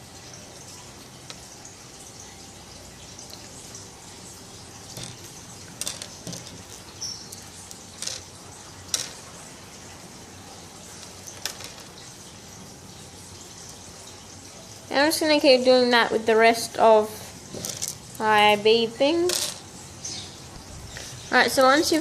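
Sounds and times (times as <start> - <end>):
clicks and rustles of beads: 5.0 - 6.8, 7.7 - 8.3, 17.5 - 18.2.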